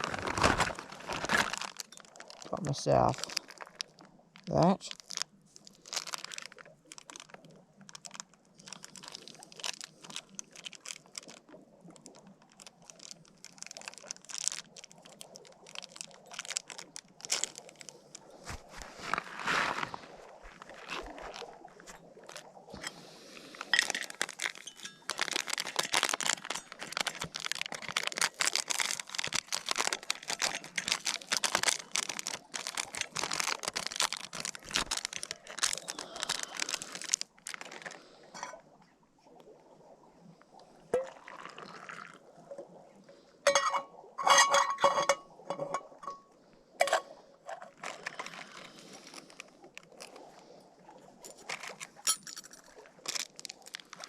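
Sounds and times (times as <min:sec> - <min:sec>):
packaging crinkling: 0:00.0 - 0:38.0, 0:47.6 - 0:50.3, 0:51.3 - 0:54.0.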